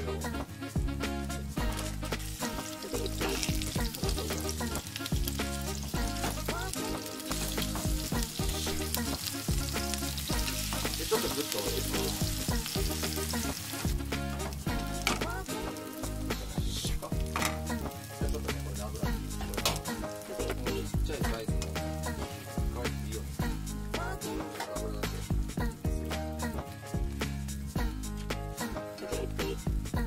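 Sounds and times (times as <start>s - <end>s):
background music: 0.0s - 30.0s
pancakes sizzling in oil: 1.6s - 21.0s.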